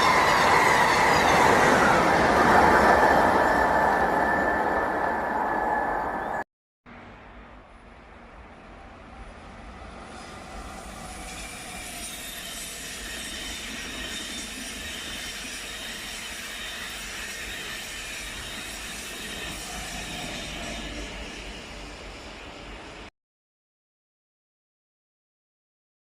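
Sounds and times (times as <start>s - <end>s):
high wheel squeal: 0.0s - 6.4s, 9.9s - 23.1s
passenger train on tracks: 0.0s - 23.1s.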